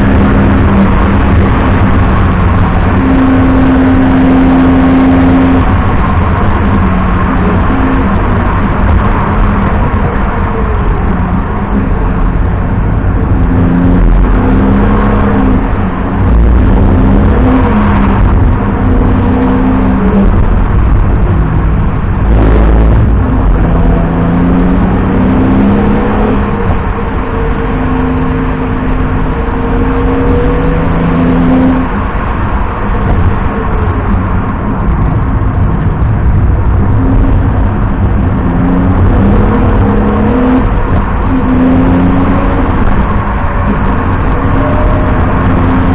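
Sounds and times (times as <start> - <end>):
car engine revving hard: 0.0 - 45.9
road and wind rumble: 0.0 - 45.9.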